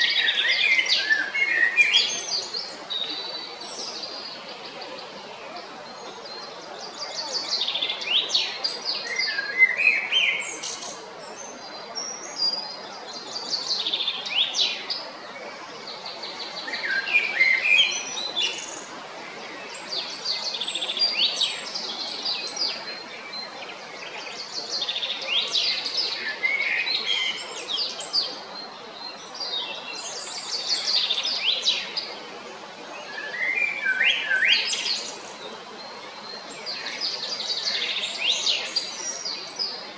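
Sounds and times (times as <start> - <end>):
blackbird singing: 0.0 - 4.8, 5.9 - 12.6, 16.2 - 18.9, 33.0 - 35.3.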